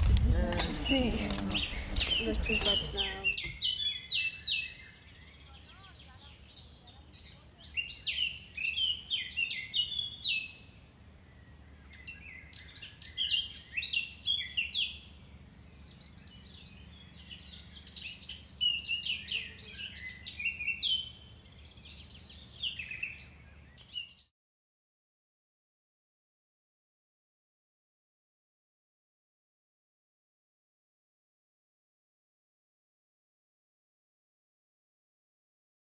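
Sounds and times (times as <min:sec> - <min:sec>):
songbirds chirping and singing: 0:00.0 - 0:24.3.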